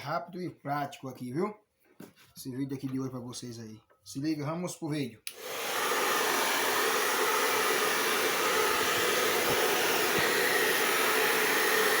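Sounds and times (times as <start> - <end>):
hair dryer blowing: 5.3 - 12.0.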